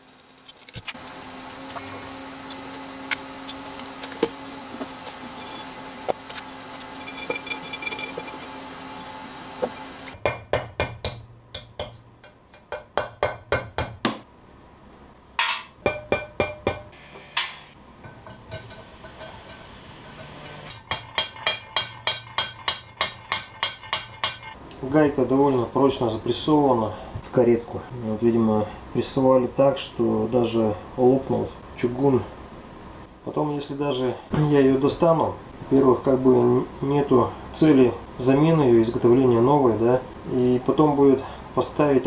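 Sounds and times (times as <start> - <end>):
steady hum with held tone: 0.0 - 42.0
hammer striking metal: 10.1 - 14.2, 15.4 - 24.6.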